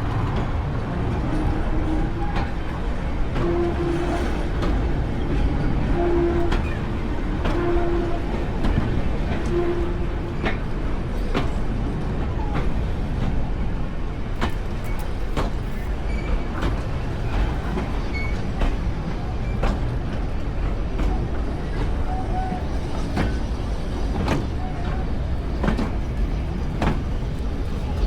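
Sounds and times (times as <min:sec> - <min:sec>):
train rumbling on track: 0:00.0 - 0:28.0
sharp knocks of train wheels: 0:14.3 - 0:26.1.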